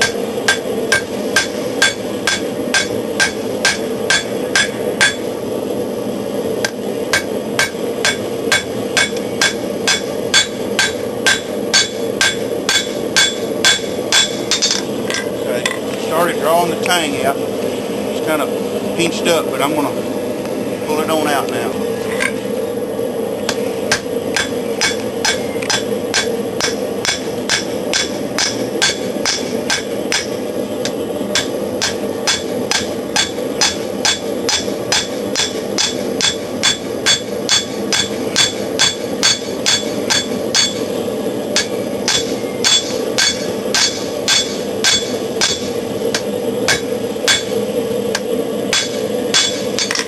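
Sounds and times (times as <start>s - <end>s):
hammer striking steel on anvil: 0.0s - 5.2s, 6.6s - 15.3s, 23.5s - 40.9s, 41.6s - 47.6s, 48.2s - 50.0s
forced-air forge noise: 0.0s - 50.0s.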